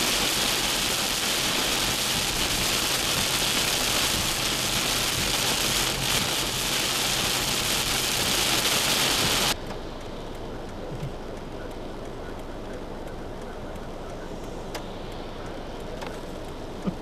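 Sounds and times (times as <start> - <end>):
torrential rain pouring: 0.0 - 9.6
faint ticks: 9.6 - 17.0.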